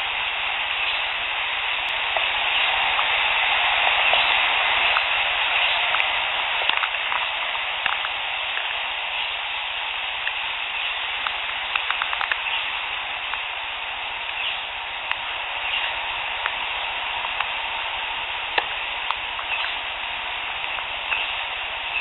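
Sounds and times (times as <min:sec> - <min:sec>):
dense steady hiss: 0:00.0 - 0:22.0
faint clicks: 0:04.0 - 0:09.4, 0:10.1 - 0:17.7, 0:18.5 - 0:19.9, 0:20.6 - 0:22.0.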